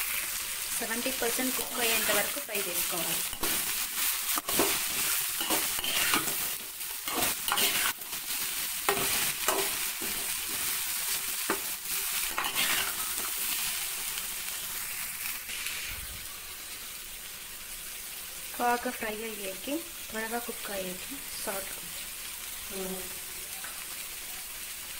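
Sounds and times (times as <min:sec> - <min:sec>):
okra sizzling in oil: 0:00.0 - 0:24.9
metal skimmer scraping a pan: 0:04.4 - 0:06.5, 0:07.1 - 0:08.0, 0:12.3 - 0:13.0.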